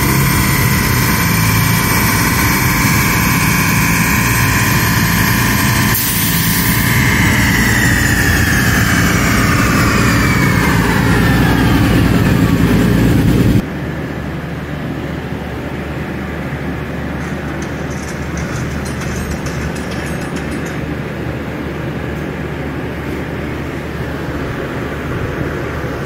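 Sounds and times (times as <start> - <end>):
car engine on dynamometer: 0.0 - 13.7.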